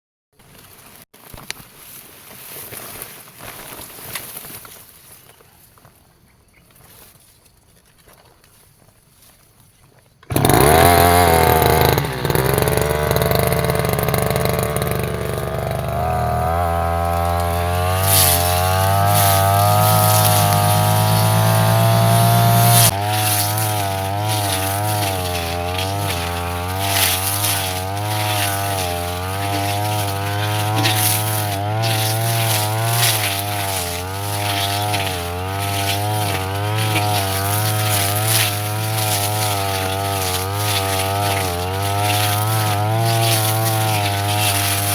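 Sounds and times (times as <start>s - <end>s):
brush cutter engine revving: 10.2s - 44.9s.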